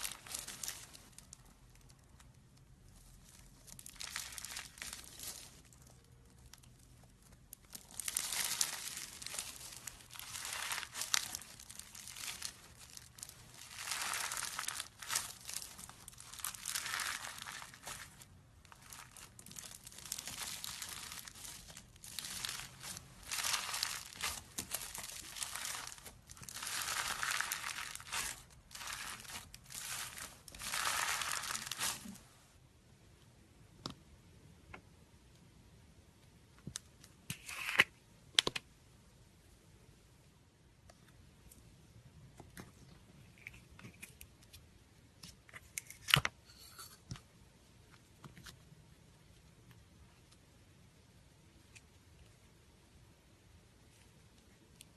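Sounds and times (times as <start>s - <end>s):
slime squeezed by hand: 7.9s - 18.2s, 18.8s - 32.2s.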